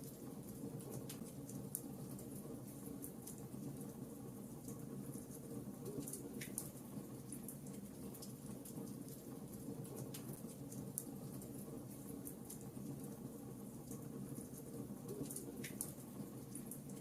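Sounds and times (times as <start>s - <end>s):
wood fire crackling and popping: 4.6s - 13.3s, 13.9s - 17.0s.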